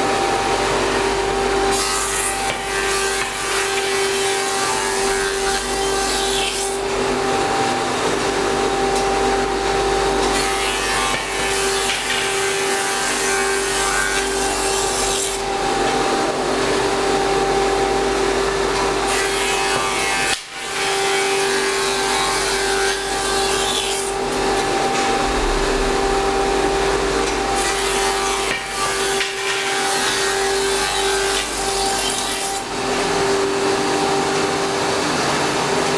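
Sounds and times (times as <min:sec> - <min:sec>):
motor hum: 0:22.8 - 0:29.0.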